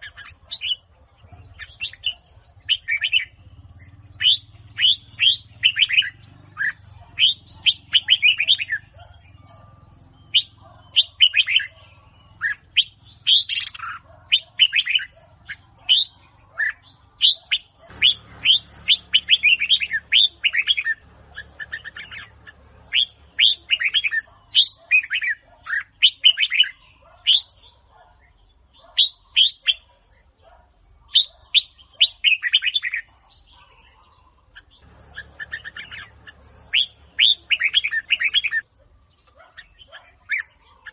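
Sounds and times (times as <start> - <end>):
bird singing whistled phrases: 1.5 - 15.2, 15.8 - 22.3, 22.9 - 27.7, 31.1 - 33.1, 36.7 - 38.6.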